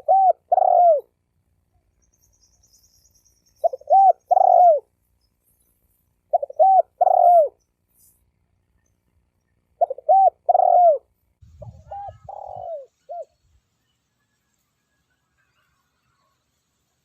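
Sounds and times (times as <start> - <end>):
dove cooing: 0.0 - 1.2, 3.6 - 4.9, 6.3 - 7.6, 9.8 - 13.4.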